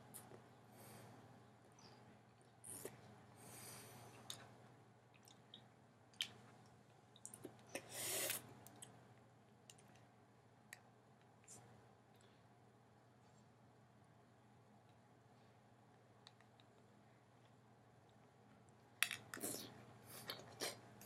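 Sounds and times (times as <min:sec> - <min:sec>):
soft chewing: 0:01.6 - 0:03.2, 0:04.0 - 0:10.1, 0:15.9 - 0:21.0.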